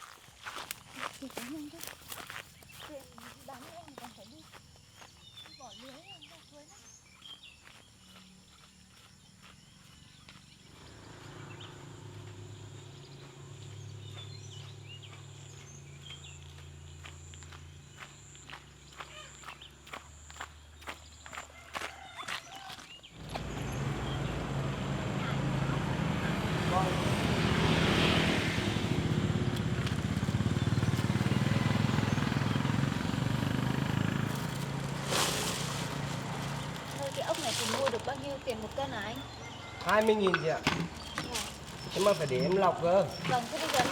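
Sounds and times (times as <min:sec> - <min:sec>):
bird chirps: 0:01.0 - 0:21.4, 0:29.0 - 0:43.9
small motorcycle engine running: 0:10.4 - 0:17.5, 0:23.2 - 0:43.9.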